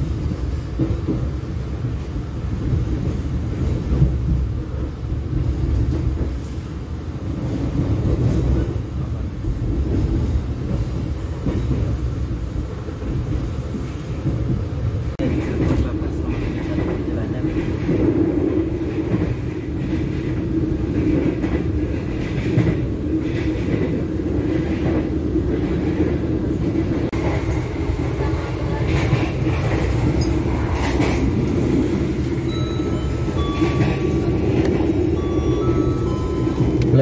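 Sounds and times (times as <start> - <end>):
train rumble inside carriage: 0.0 - 37.0.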